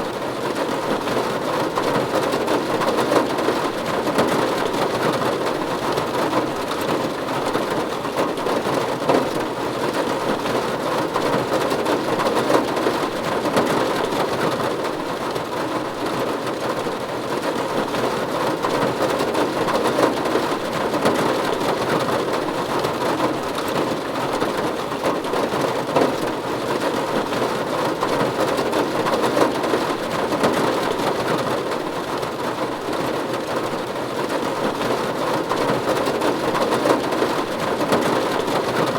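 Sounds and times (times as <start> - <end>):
rain on a roof: 0.0 - 38.9.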